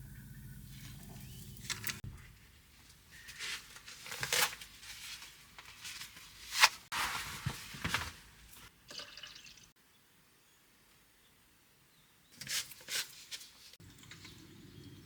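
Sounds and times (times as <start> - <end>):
rustling crinkling swishes: 0.7 - 8.7.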